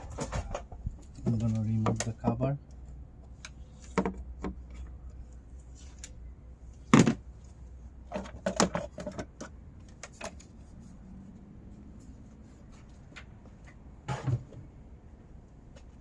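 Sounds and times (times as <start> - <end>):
clunks and rattles: 0.0 - 2.1, 8.0 - 10.4, 14.0 - 14.8
plastic engine cover clunking: 8.1 - 9.5.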